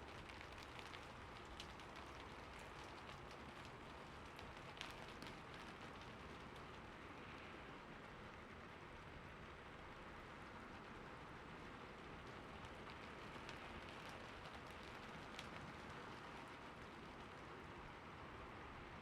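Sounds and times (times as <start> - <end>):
raindrops ticking: 0.0 - 6.8, 11.5 - 17.6
soft rain hiss: 0.0 - 19.0.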